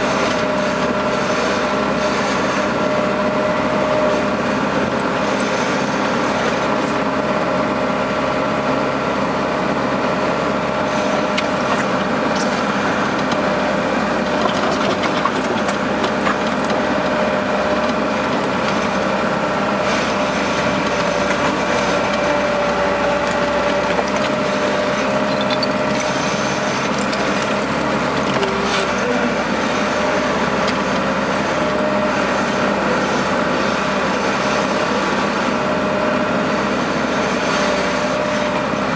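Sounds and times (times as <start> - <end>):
diesel engine running: 0.0 - 38.9
short clanks and rattles: 14.2 - 16.8.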